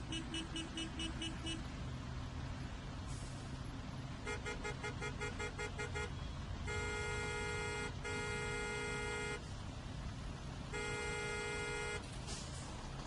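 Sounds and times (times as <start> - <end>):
horn beeps and blasts: 0.0 - 1.7, 4.2 - 9.4, 10.7 - 12.1.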